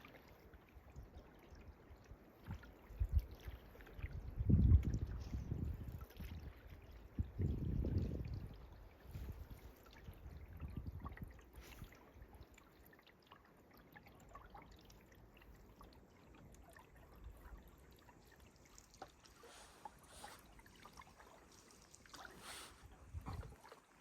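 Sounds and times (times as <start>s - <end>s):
water dripping off paddle: 0.0s - 24.0s
paddle strokes swishing: 18.3s - 24.0s.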